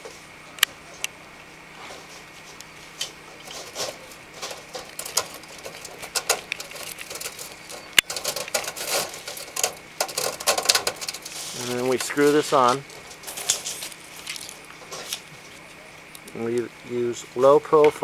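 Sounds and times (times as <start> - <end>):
gutter screen clicking and rattling: 3.4 - 15.2.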